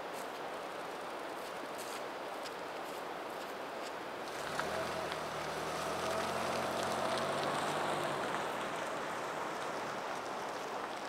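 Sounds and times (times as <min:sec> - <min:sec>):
vehicle engine humming: 0:04.3 - 0:11.0.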